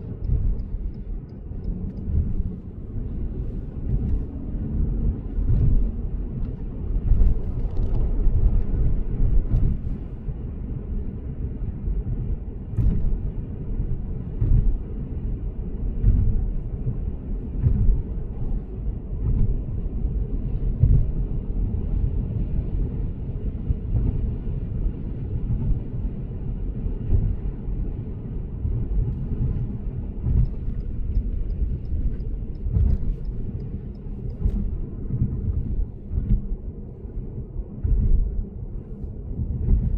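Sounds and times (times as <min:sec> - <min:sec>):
tyre and road rumble: 0:00.0 - 0:10.2, 0:28.6 - 0:39.9
faint ticks: 0:30.3 - 0:34.8.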